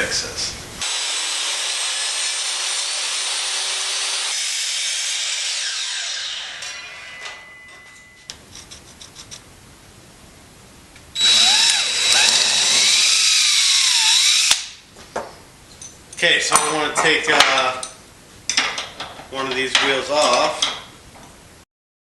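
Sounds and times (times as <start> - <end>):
power saw cutting wood: 0.8 - 7.5, 11.2 - 14.8
power drill whining: 11.2 - 14.8.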